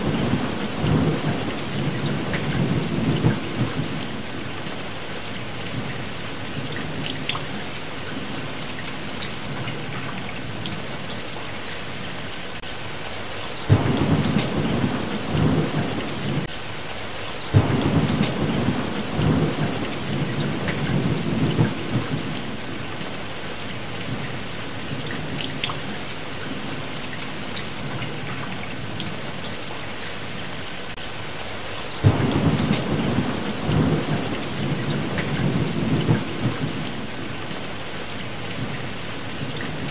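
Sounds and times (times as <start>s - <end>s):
thunder rumbling: 0.0s - 4.2s, 13.7s - 16.5s, 17.5s - 22.6s, 32.0s - 37.3s
steady rain falling: 0.0s - 39.9s.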